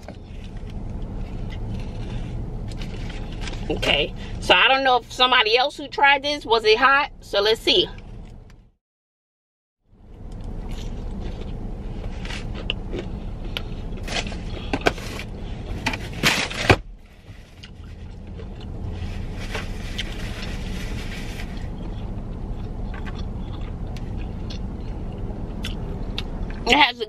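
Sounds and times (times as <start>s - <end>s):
crunchy chewing: 0.0s - 3.7s, 17.5s - 26.6s
low hum inside car: 0.0s - 8.8s, 9.9s - 27.0s.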